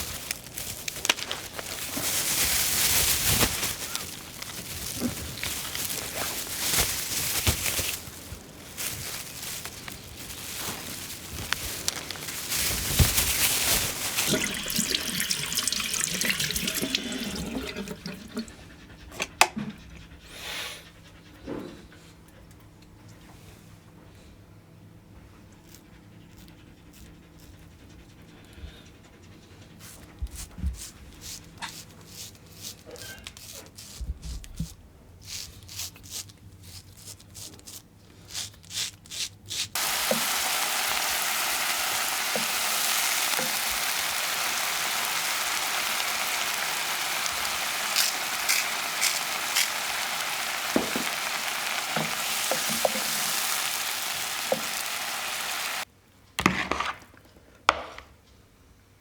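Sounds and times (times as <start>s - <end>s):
sizzling hiss with crackles: 39.7s - 55.9s.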